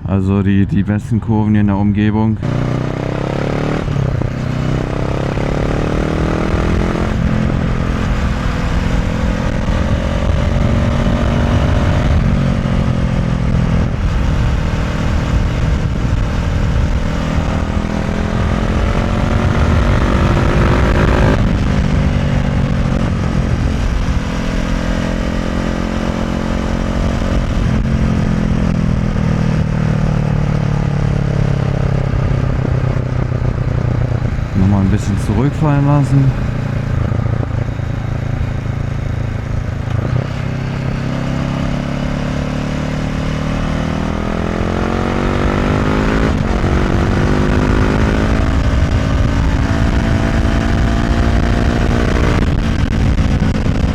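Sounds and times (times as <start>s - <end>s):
motorcycle engine accelerating: 2.4s - 53.9s
wind noise on microphone: 2.4s - 53.9s.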